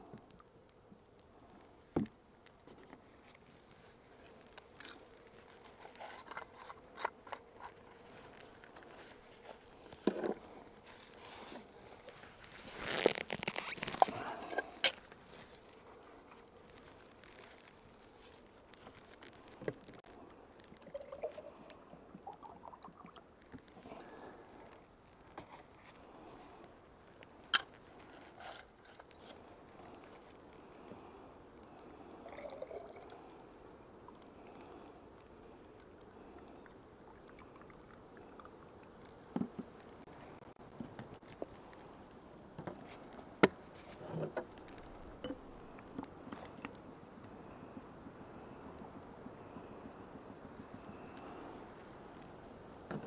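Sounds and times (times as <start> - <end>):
scraping crunch: 2.8 - 20.0.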